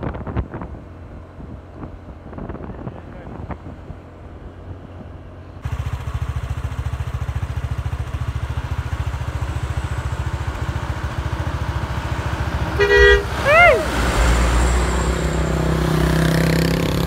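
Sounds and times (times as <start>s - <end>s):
truck diesel engine running: 3.7s - 17.0s.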